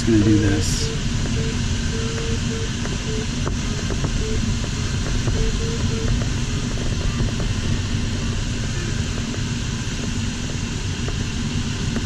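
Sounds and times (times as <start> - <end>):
airflow rushing over glider canopy: 2.8 - 12.0.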